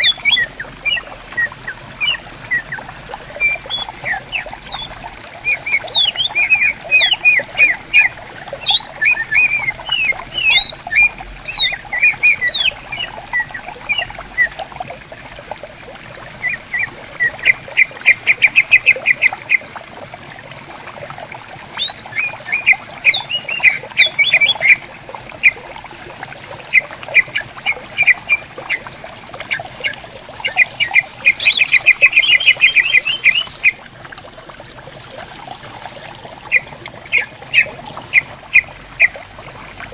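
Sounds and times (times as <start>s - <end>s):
bird singing whistled notes and trills: 0.0s - 14.6s, 21.8s - 24.8s, 26.7s - 28.9s, 29.5s - 33.8s
gently flowing stream: 0.0s - 39.9s.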